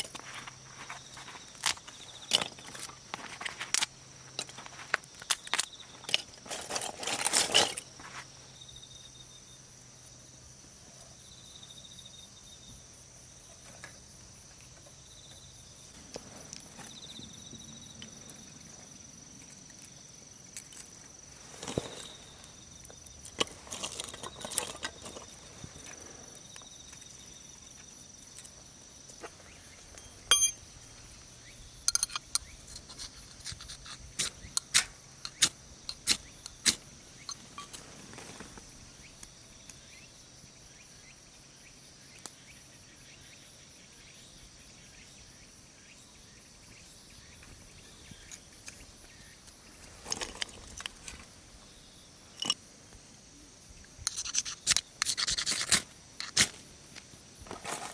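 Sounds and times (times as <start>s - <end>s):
objects being handled: 0.0s - 8.3s, 20.5s - 27.1s, 28.4s - 30.7s, 31.9s - 38.7s, 52.3s - 52.7s, 54.0s - 57.9s
insects trilling: 0.0s - 57.9s.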